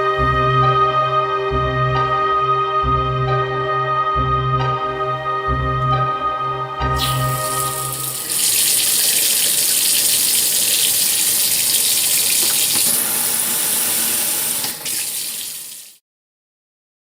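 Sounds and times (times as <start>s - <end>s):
background music: 0.0s - 9.8s
water running into sink: 7.0s - 16.0s.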